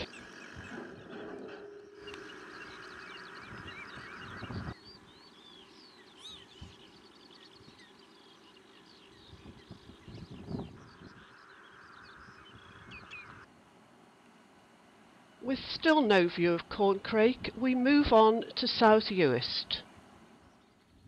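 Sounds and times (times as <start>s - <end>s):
birds chirping: 0.0s - 13.5s.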